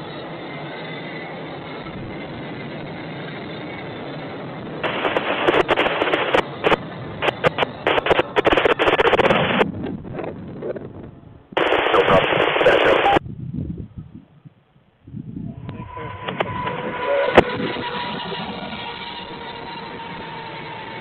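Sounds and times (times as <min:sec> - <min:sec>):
choppy crackling with sharp pops: 0:01.8 - 0:13.2.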